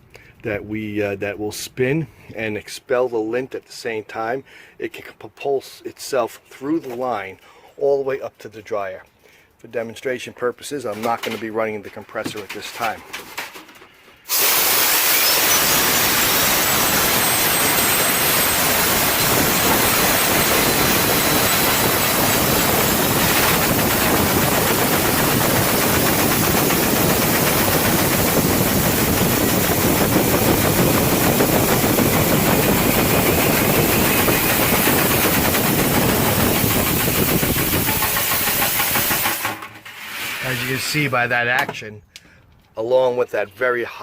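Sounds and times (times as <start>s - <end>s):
compressed air rushing hiss: 14.2s - 39.5s.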